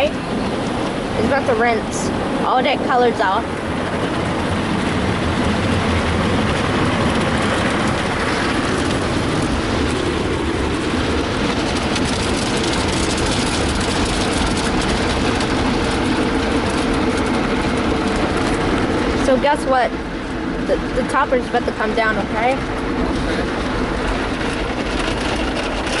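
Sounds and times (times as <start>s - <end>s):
car wash machinery: 0.0s - 26.0s
steady hum: 0.0s - 26.0s
water spraying against car: 0.0s - 26.0s.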